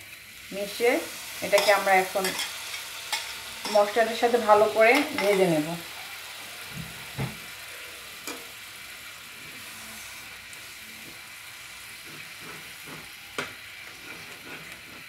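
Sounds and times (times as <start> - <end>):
vegetable paste sizzling in a pan: 0.0 - 15.0
spatula stirring: 5.0 - 5.5, 11.0 - 15.0.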